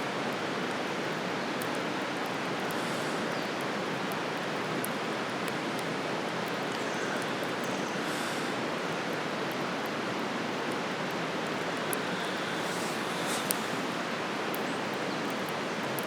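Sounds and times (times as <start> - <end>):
campfire crackling and popping: 9.4 - 16.0.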